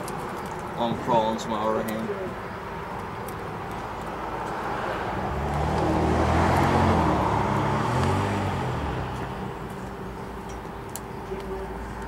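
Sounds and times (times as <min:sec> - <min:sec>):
motor vehicle passing by: 0:04.0 - 0:10.3.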